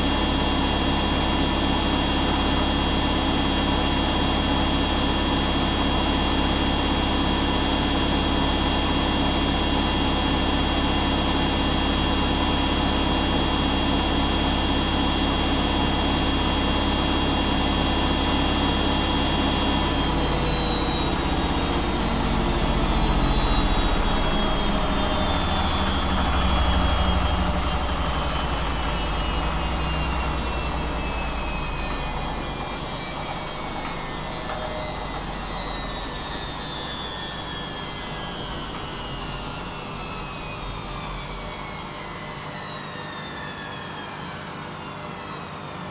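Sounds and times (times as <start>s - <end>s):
washing machine spin whine: 0.0s - 45.9s.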